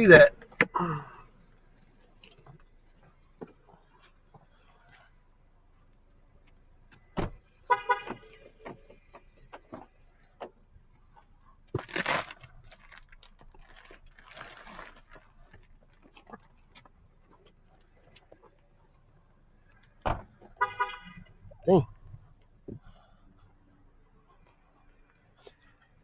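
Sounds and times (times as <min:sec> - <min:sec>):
small clicks and scuffs: 0:01.7 - 0:07.1, 0:08.1 - 0:20.6
car door thumping shut: 0:07.0 - 0:07.4, 0:20.0 - 0:20.5
car horn chirp: 0:07.7 - 0:08.4, 0:20.6 - 0:21.3
rustling: 0:11.7 - 0:18.7.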